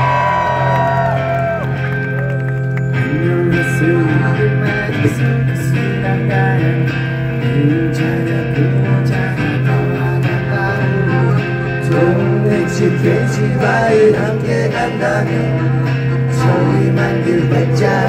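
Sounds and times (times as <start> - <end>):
bass line: 0.0 - 18.0
electric guitar: 0.0 - 18.0.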